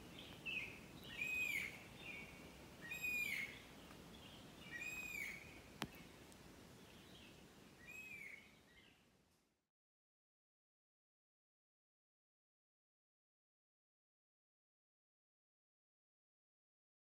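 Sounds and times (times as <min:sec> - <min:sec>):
birds calling: 0:00.0 - 0:09.0
faint forest ambience hiss: 0:00.0 - 0:09.6.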